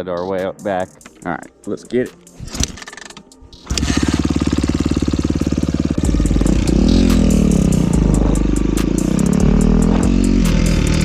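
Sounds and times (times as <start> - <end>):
dirt bike engine revving: 3.6 - 11.0.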